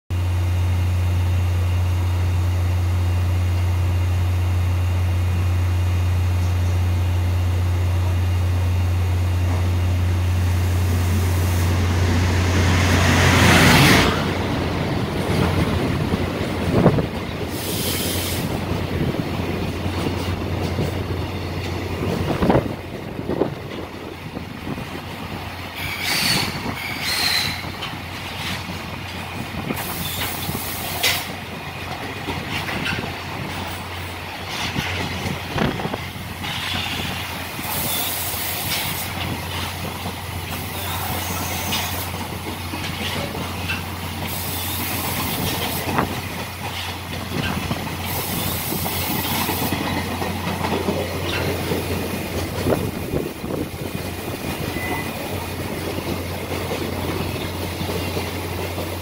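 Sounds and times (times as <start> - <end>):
locomotive hum: 0.1 - 59.0
wheel squeals: 25.8 - 27.9, 29.8 - 31.2, 36.4 - 38.7, 54.6 - 55.4.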